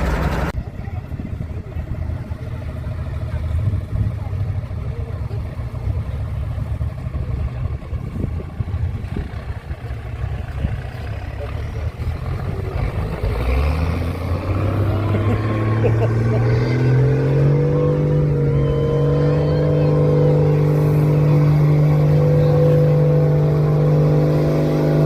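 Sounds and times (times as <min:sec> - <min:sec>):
truck engine rumbling: 0:00.0 - 0:25.0.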